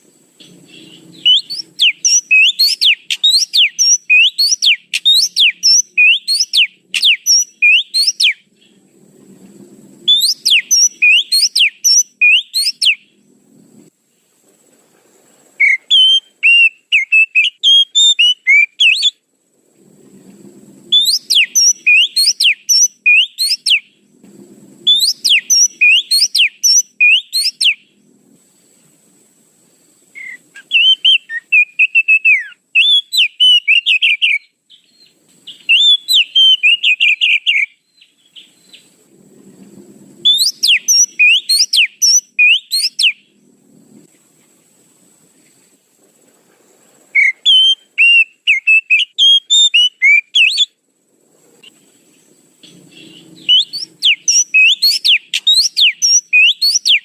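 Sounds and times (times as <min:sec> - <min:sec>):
bird warbling: 0:00.4 - 0:08.8, 0:20.9 - 0:23.8, 0:52.6 - 0:57.0
bird whistling sharp notes: 0:00.7 - 0:08.4, 0:10.1 - 0:13.1, 0:15.6 - 0:19.2, 0:20.9 - 0:23.9, 0:24.9 - 0:27.8, 0:30.2 - 0:38.8, 0:40.2 - 0:43.2, 0:47.2 - 0:50.7, 0:52.9 - 0:57.0.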